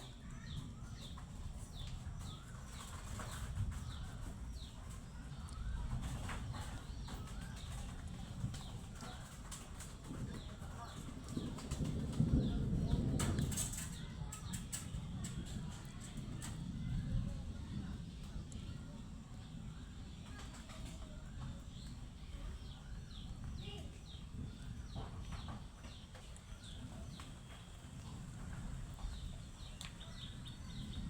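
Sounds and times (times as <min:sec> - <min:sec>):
steady low rumbling noise: 0:10.0 - 0:31.0.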